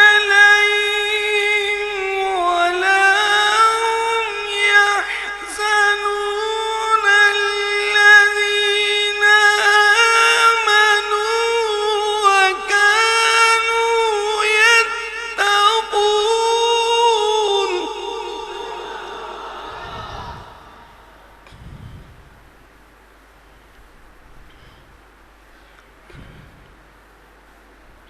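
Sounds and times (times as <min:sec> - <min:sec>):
melodic religious recitation: 0:00.0 - 0:22.5.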